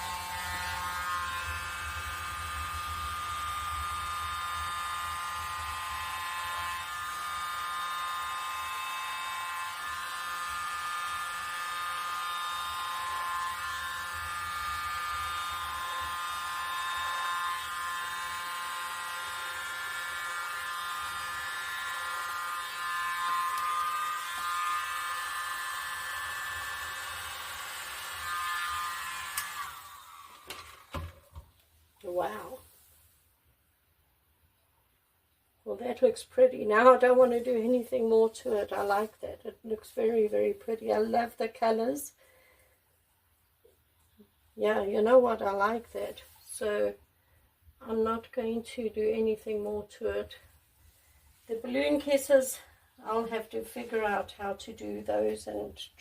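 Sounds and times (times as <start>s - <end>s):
hair dryer whining: 0.0s - 32.6s.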